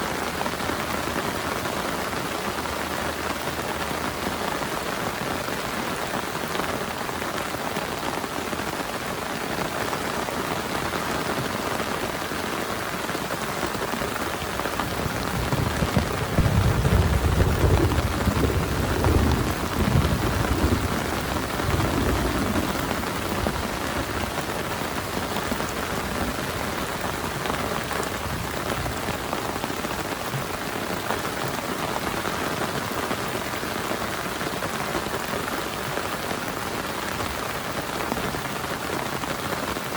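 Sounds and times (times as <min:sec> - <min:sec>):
heavy rain falling: 0:00.0 - 0:39.9
thunder rumbling: 0:14.1 - 0:29.9.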